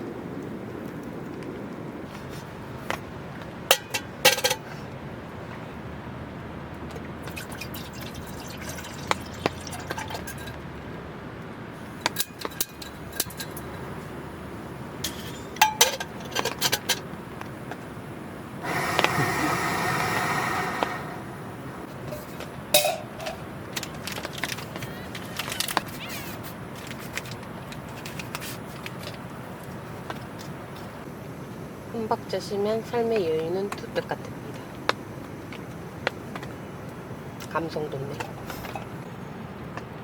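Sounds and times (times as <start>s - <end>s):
cups and dishes clinking: 8.7s - 10.6s, 15.0s - 17.0s, 22.1s - 23.4s
steady rushing sound: 18.6s - 22.1s.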